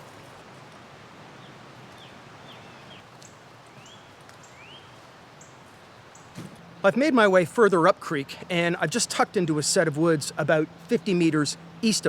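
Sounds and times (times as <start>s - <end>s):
steady background hiss: 0.0s - 12.0s
songbirds whistling: 3.7s - 5.6s.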